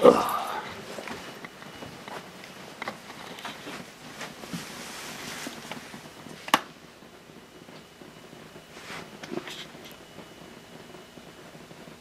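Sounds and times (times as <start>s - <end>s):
faint rustling: 0.7s - 6.1s.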